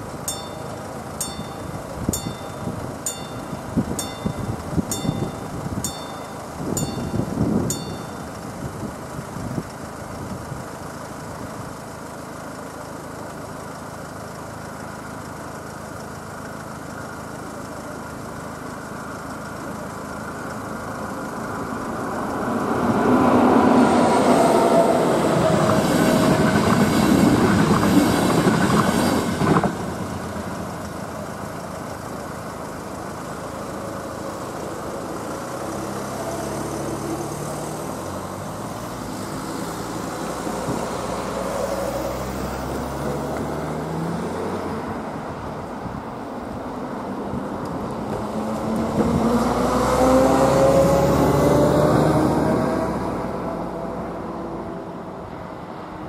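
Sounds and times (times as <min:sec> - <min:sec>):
train wheels rolling on rails: 0:00.0 - 0:08.6, 0:22.3 - 0:31.5
road vehicles pulling away: 0:00.0 - 0:56.0.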